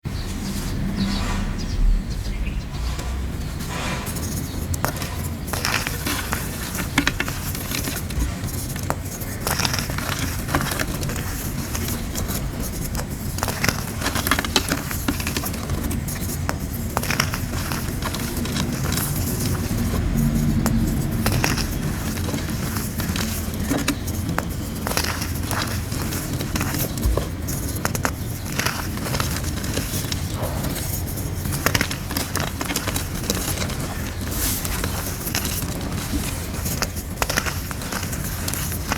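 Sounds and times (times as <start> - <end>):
low rumble: 0.4 - 4.0
chalk crunching and crumbling: 3.6 - 38.9.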